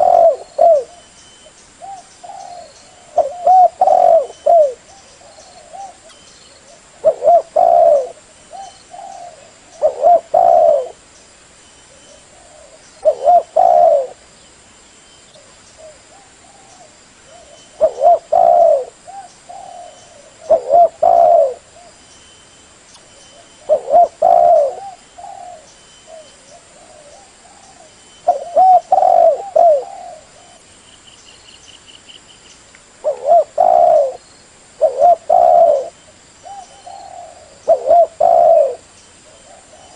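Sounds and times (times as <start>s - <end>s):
dove cooing: 0.0s - 11.0s, 11.9s - 14.2s, 15.4s - 22.0s, 23.3s - 30.7s, 33.0s - 34.2s, 34.8s - 39.9s.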